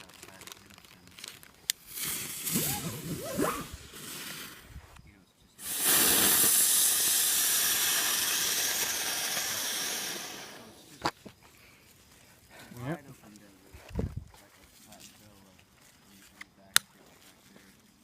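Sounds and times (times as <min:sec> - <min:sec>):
firework hissing: 0:01.7 - 0:04.9, 0:05.6 - 0:11.1.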